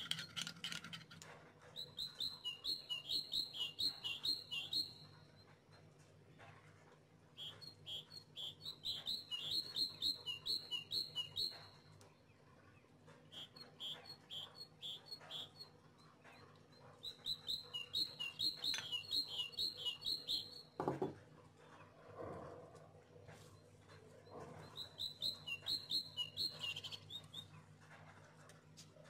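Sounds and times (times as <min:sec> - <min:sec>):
bird chirping high notes: 0:17.0 - 0:20.7.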